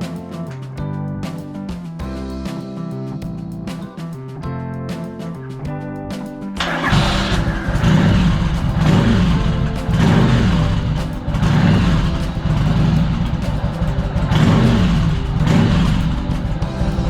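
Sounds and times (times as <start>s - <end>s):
motorcycle engine revving: 6.6s - 17.0s.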